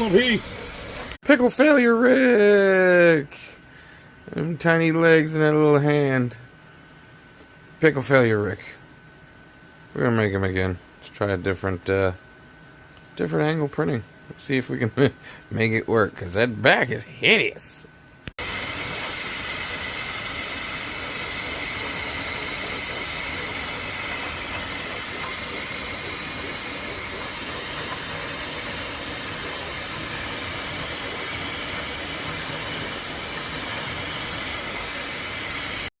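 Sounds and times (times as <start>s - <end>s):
printer fan hiss: 0.0s - 6.4s, 18.4s - 35.9s.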